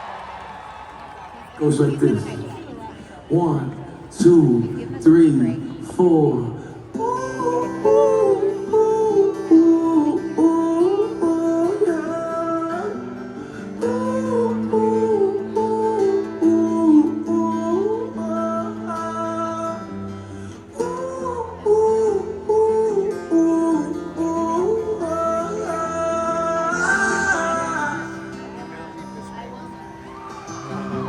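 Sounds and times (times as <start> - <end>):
acoustic guitar playing: 1.7 - 31.0
person singing wordlessly: 6.9 - 28.8.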